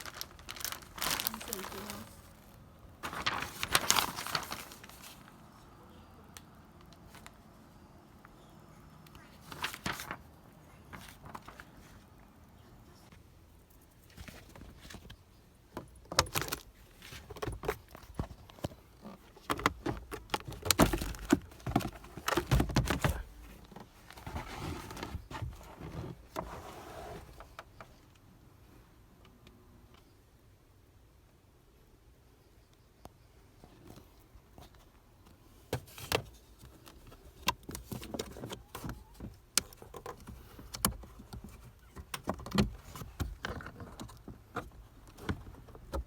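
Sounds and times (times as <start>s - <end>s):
plastic packaging crinkling: 0.0s - 5.4s, 16.2s - 25.5s
rustling and scraping: 0.0s - 5.4s, 13.1s - 28.0s
plastic parts clicking and knocking: 14.2s - 23.9s.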